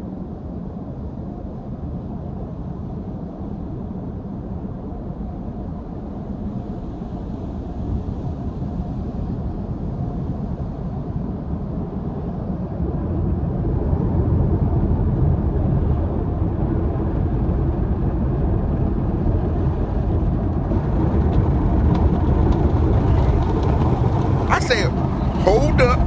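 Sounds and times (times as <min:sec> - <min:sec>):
car wash machinery: 0:23.0 - 0:26.0.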